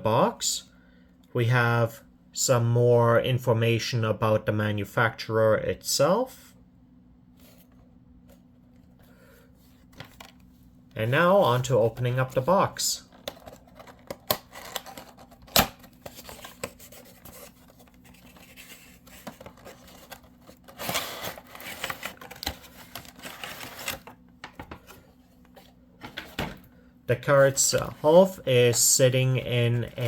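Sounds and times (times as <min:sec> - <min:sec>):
packaging scraping and rustling: 0:13.0 - 0:26.4.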